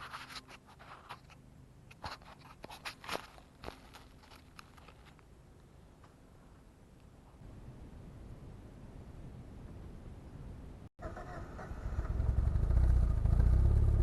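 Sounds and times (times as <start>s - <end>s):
faint crunches and clicks: 0.0s - 6.2s.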